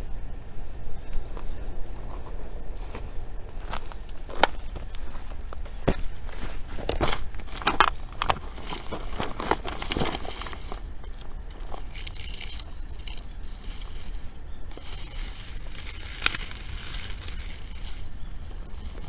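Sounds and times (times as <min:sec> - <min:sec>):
wood fire crackling: 0:07.3 - 0:19.0.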